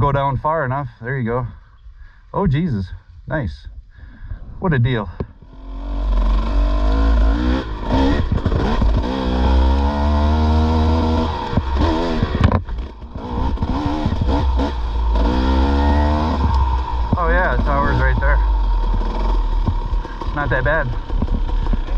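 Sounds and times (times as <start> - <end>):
dirt bike engine revving: 5.5 - 21.9.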